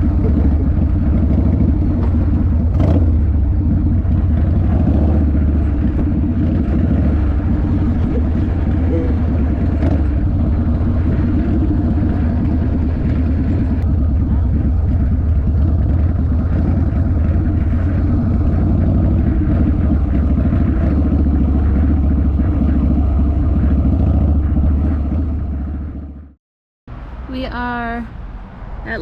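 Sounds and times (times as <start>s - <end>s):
motorcycle engine rumbling: 0.0s - 29.0s.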